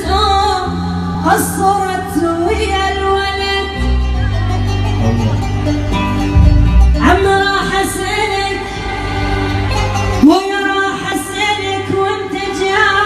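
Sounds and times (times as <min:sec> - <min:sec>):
instrumental backing: 0:03.4 - 0:10.9.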